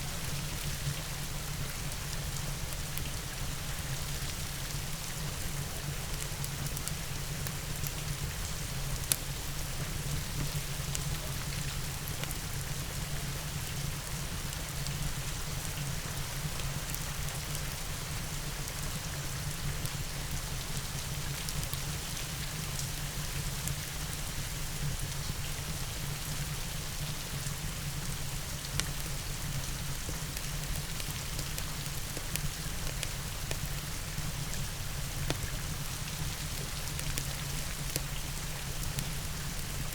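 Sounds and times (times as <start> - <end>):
steady rain: 0.0 - 39.9
fireplace crackling and popping: 8.9 - 9.6, 30.0 - 35.6.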